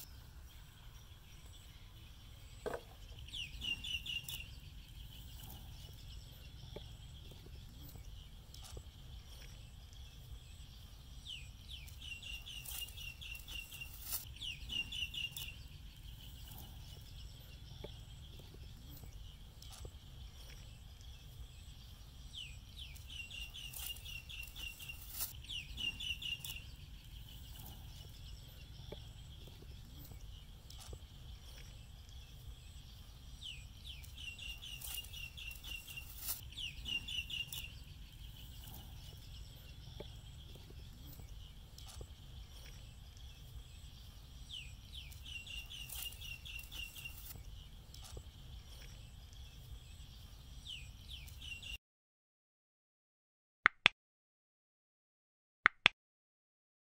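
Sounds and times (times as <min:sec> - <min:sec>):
bird calling with high chirps: 0:00.0 - 0:51.8.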